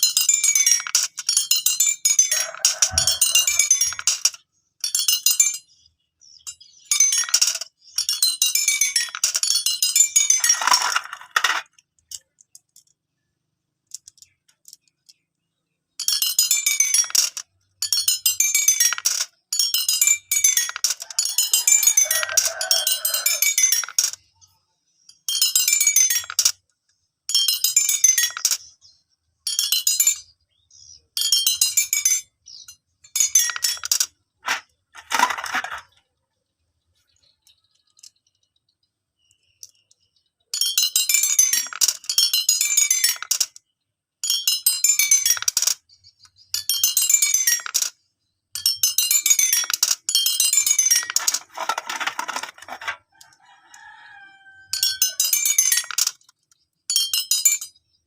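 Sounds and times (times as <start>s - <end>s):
marbles running down xylophone bars: 0.1s - 4.4s, 6.8s - 11.7s, 16.0s - 24.2s, 25.4s - 26.6s, 27.3s - 28.7s, 33.2s - 35.9s, 40.6s - 43.6s, 44.3s - 45.8s, 46.6s - 48.0s, 48.6s - 52.9s, 54.8s - 56.2s.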